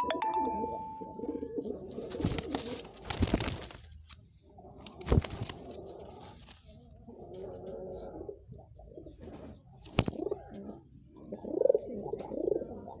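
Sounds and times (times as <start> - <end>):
pigeons cooing: 7.0 - 13.0.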